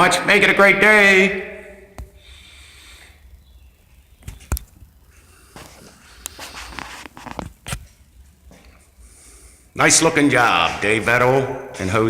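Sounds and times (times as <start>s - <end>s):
rustling or shuffling: 4.2s - 9.0s.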